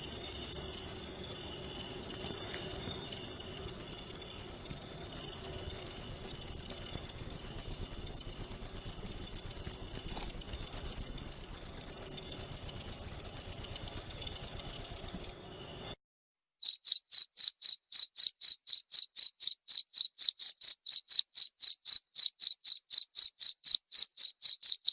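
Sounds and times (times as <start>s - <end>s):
crickets trilling fast: 0.0s - 15.9s
crickets chirping: 0.0s - 16.0s, 16.6s - 24.9s.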